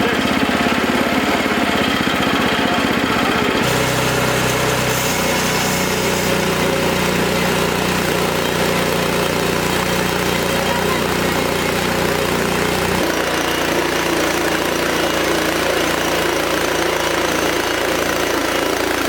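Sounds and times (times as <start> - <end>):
sawmill engine running: 0.0 - 19.0.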